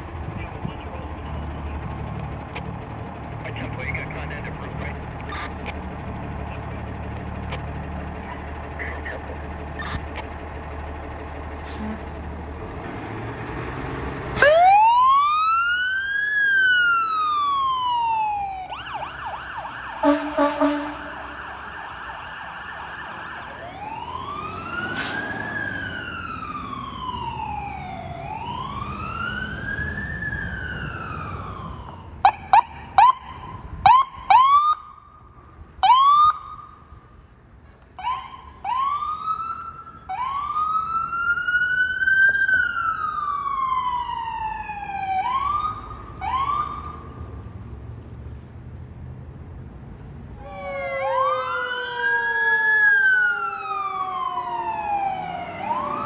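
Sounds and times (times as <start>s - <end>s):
truck engine rumbling: 0.0s - 56.0s
siren wailing: 14.4s - 35.1s, 35.8s - 36.7s, 38.0s - 47.2s, 50.4s - 56.0s
siren whooping: 14.4s - 35.1s, 35.8s - 36.7s, 38.0s - 47.2s, 50.4s - 56.0s
air horn blasts: 20.0s - 21.4s.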